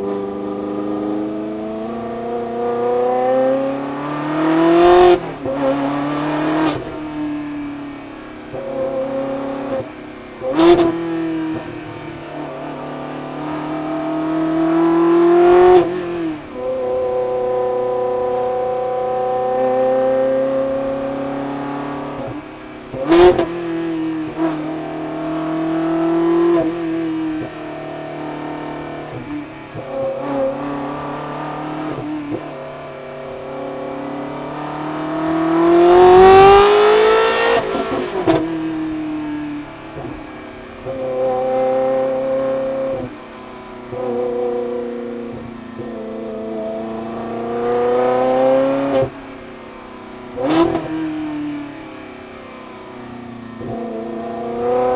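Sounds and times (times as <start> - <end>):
car engine revving loud: 0.0 - 54.9
exhaust cracks: 20.5 - 47.2.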